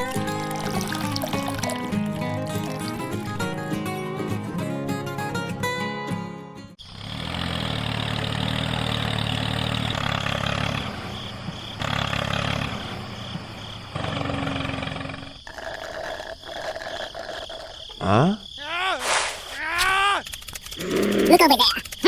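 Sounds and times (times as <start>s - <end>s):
engine running: 6.8s - 15.3s.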